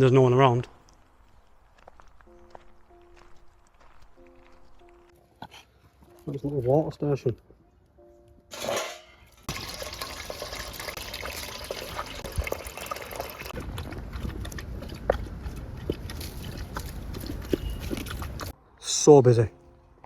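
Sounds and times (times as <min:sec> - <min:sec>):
water trickling and dripping: 0:09.4 - 0:18.5.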